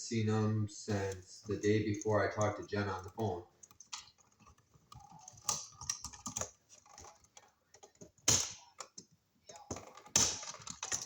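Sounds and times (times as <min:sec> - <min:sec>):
hand tools clicking and tapping: 0:01.7 - 0:11.0.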